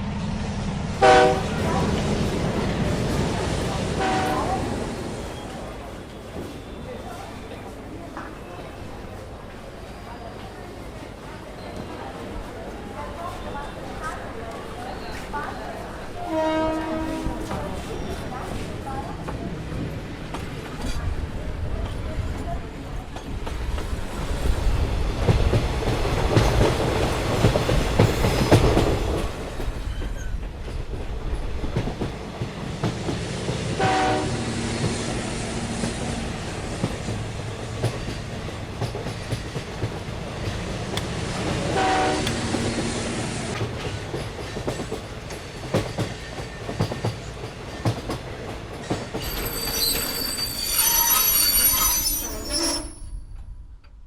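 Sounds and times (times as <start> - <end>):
train wheels rumbling on rails: 0.0 - 54.0
train horn: 1.0 - 1.8, 3.9 - 4.8, 16.1 - 17.6, 33.8 - 34.6, 41.7 - 42.6
high squeal: 49.2 - 53.5.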